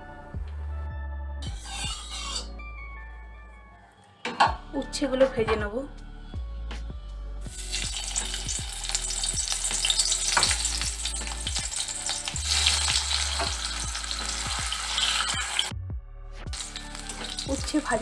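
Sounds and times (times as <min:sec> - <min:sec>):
vegetables sizzling in oil: 0:07.5 - 0:15.7, 0:16.5 - 0:18.0.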